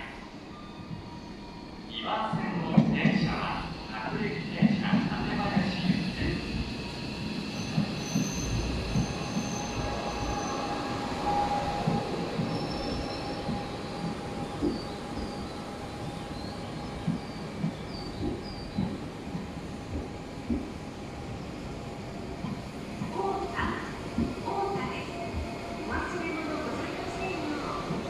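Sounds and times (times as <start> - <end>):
high-pitched wheel squeals: 7.5 - 14.1.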